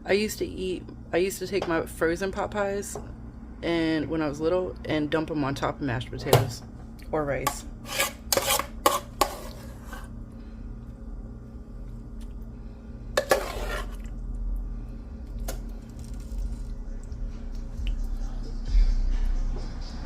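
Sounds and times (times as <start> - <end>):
low steady hum: 0.0 - 20.0
metal spoon scraping a pot: 7.5 - 10.1, 13.2 - 14.1.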